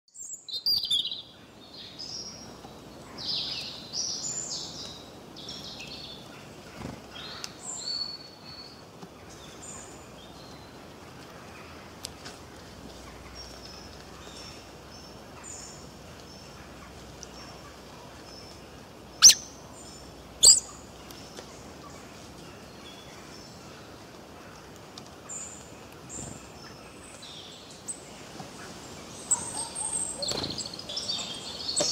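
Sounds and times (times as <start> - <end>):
background hiss: 0.2 - 31.9
bird high chirping notes: 19.2 - 19.6, 20.4 - 20.7.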